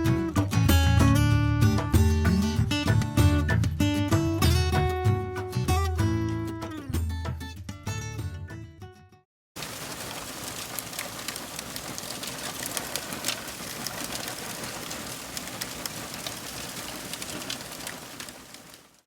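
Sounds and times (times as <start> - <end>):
rain hiss: 9.6 - 19.0
raindrops ticking on surfaces: 9.6 - 19.0.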